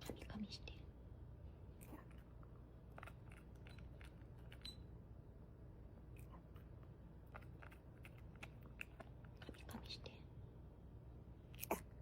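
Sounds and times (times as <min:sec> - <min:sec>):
low steady hum: 0:00.0 - 0:12.0
dog eating crunches: 0:06.2 - 0:09.7.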